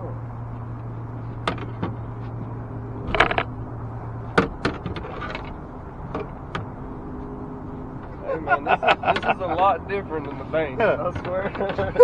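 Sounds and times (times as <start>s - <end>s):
steady low hum: 0.0s - 11.2s
sharp knocks and clicks: 1.4s - 3.6s, 4.3s - 6.7s.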